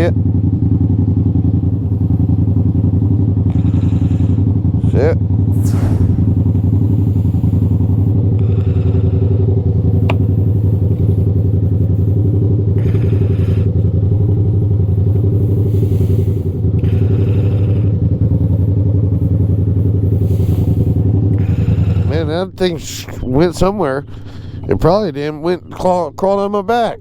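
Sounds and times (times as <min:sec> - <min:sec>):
motorcycle engine idling: 0:00.0 - 0:22.6
bursts of hiss: 0:05.5 - 0:08.1.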